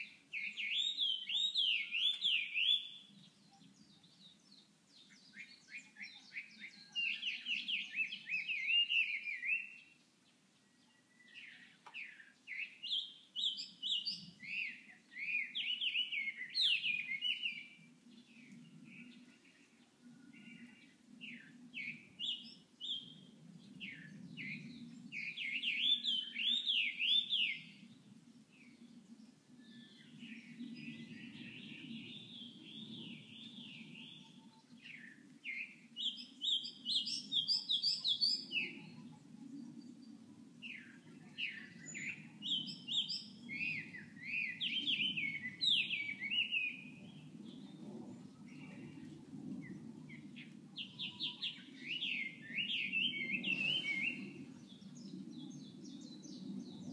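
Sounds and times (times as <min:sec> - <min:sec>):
songbird warbling: 0:50.8 - 0:54.4.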